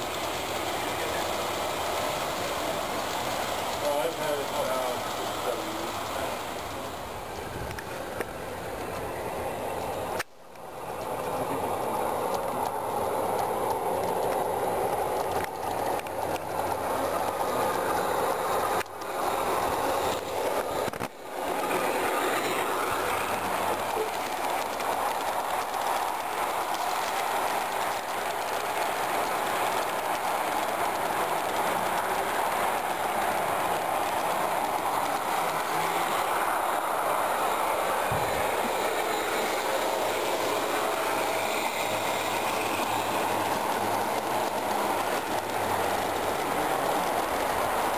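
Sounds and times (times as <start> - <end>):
miniature train wheels on rails: 0.0 - 47.9.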